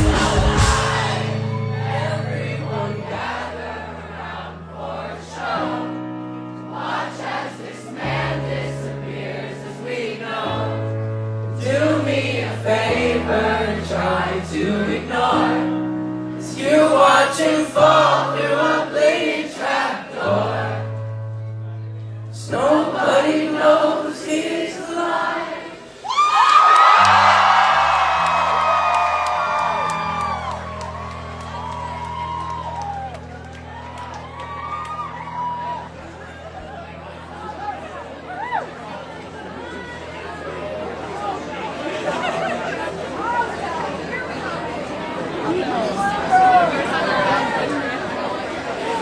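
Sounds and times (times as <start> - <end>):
live band music: 0.0 - 1.5
held bass notes: 0.0 - 5.0
many voices singing: 0.0 - 21.0, 22.4 - 26.0.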